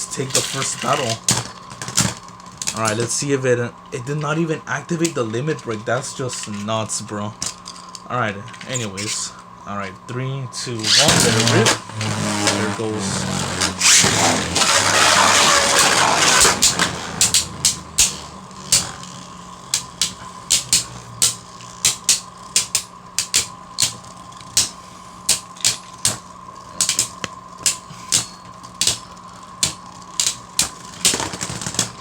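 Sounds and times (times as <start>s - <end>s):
spinning tops whirring: 0.0s - 9.5s, 10.7s - 32.0s
faint spinning whine: 0.0s - 32.0s
spinning tops clicking together: 13.8s - 32.0s.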